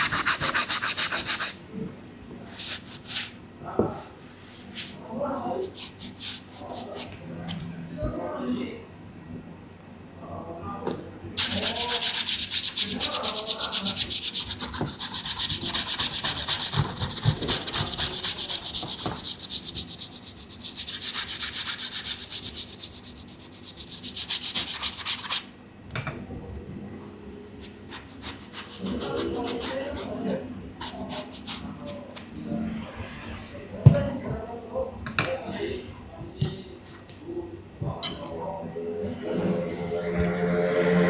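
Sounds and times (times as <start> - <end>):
brush scrubbing a sneaker: 0.0 - 1.6, 11.4 - 25.4, 28.0 - 32.0.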